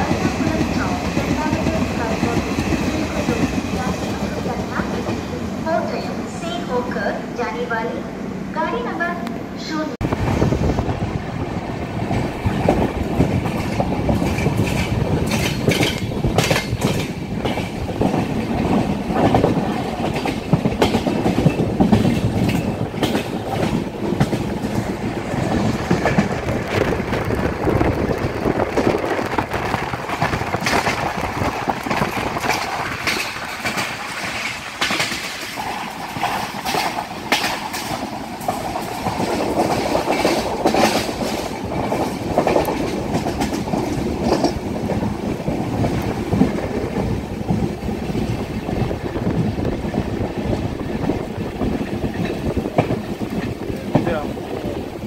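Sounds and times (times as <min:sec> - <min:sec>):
train wheels rumbling on rails: 0:00.0 - 0:55.0
wheels clacking over rail joints: 0:12.0 - 0:55.0.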